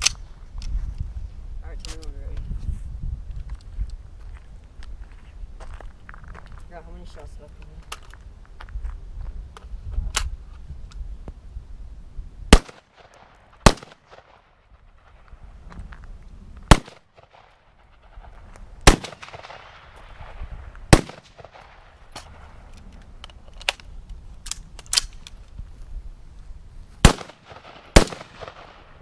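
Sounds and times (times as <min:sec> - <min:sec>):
rifle shots: 0:12.5 - 0:15.2, 0:16.7 - 0:22.5, 0:27.0 - 0:29.0.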